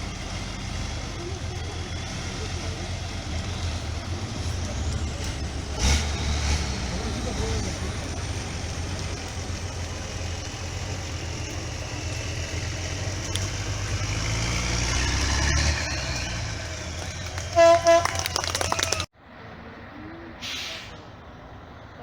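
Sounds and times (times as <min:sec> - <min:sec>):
truck engine rumbling: 0:00.0 - 0:22.0
truck horn toots: 0:16.0 - 0:19.1.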